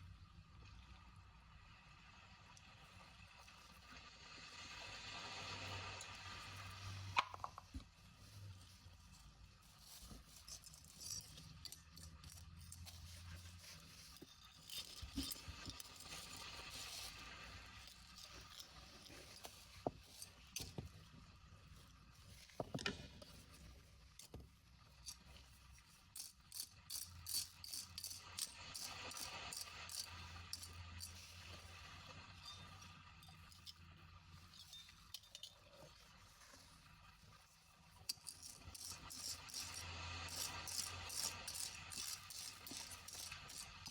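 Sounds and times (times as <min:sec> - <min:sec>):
small hard objects clicking and clinking: 0:07.0 - 0:07.8, 0:09.9 - 0:20.8, 0:26.1 - 0:35.7, 0:38.0 - 0:43.9.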